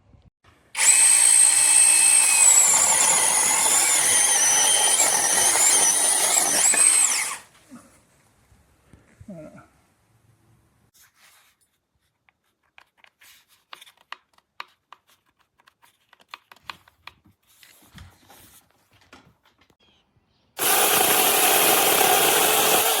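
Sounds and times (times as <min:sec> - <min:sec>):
chainsaw running: 0:00.8 - 0:07.5, 0:20.6 - 0:23.0.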